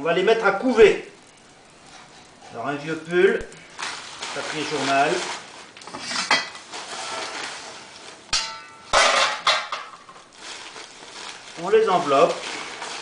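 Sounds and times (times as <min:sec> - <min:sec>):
metal pan clanking: 0:08.3 - 0:10.2.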